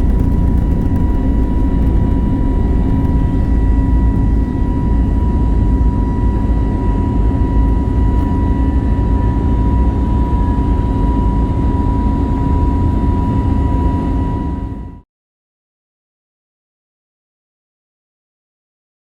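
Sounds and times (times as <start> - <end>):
jet engines and airflow rumble: 0.0 - 15.0.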